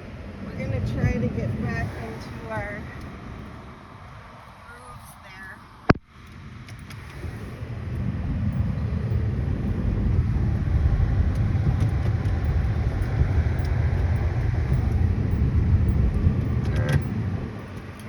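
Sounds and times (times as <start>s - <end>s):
vehicle engine under load: 5.8s - 18.0s.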